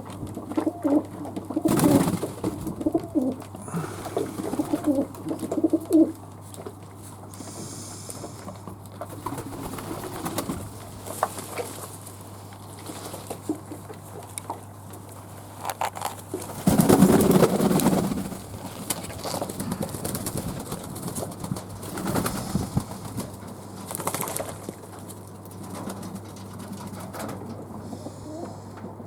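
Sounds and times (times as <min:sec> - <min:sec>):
doves cooing: 0:00.0 - 0:06.4, 0:16.3 - 0:25.0, 0:26.6 - 0:29.0.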